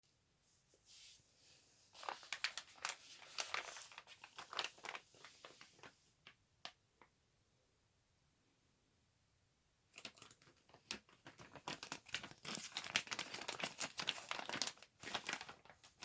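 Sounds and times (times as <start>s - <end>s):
packaging crinkling: 2.0s - 5.9s, 10.0s - 16.0s.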